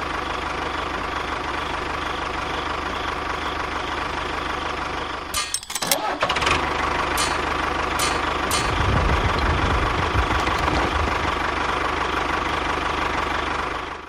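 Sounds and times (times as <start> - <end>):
motor running with low rumble: 0.0 - 14.0.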